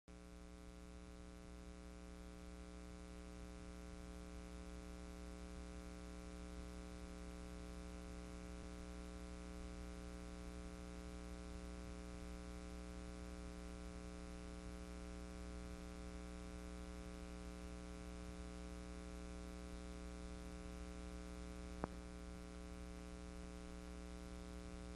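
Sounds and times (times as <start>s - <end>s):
faint electrical hum: 14.7s - 24.9s.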